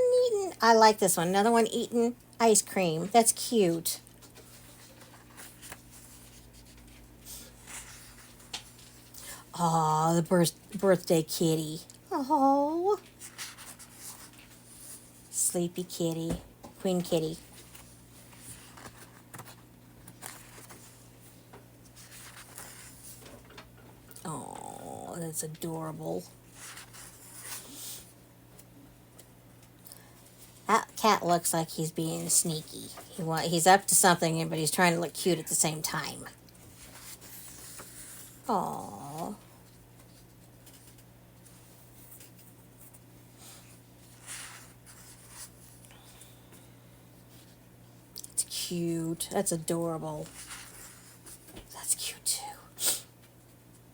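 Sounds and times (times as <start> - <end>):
paper pages rustling: 4.1 - 9.1, 13.0 - 15.1, 17.3 - 21.0, 21.8 - 23.2, 39.7 - 45.8.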